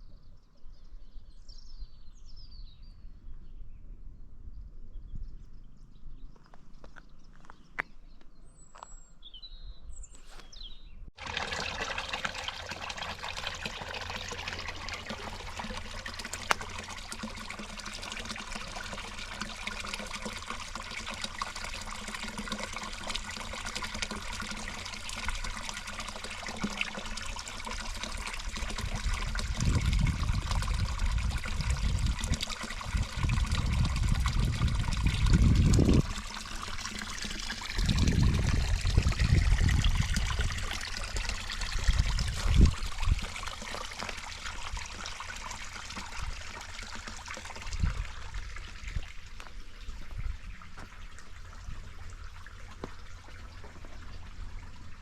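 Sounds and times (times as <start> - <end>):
bird chirps: 4.6 - 11.0
water trickling: 11.2 - 55.0.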